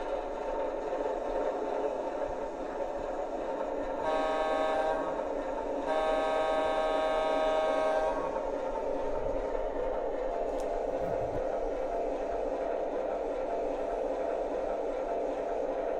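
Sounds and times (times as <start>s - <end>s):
model train running on track: 0.0s - 15.9s
toy train horn blasts: 4.0s - 5.2s, 5.8s - 8.4s.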